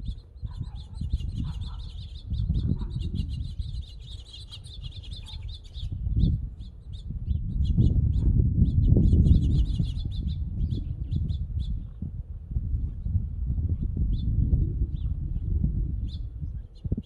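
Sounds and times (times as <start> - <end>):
small birds chirping: 0.0 - 12.1, 12.8 - 17.0
low rumble: 7.2 - 16.6.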